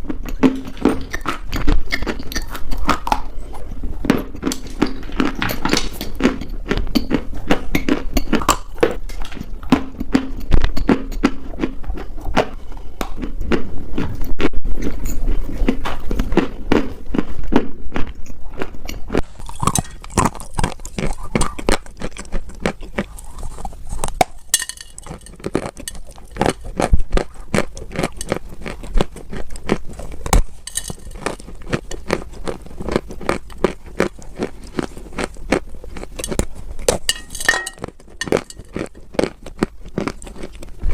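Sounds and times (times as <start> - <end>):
dry clay crunching: 18.0 - 40.9.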